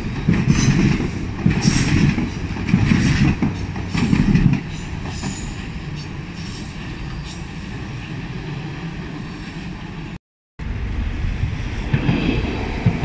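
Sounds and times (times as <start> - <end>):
steady train rumble: 0.0 - 13.0
train wheels clattering: 0.2 - 5.7.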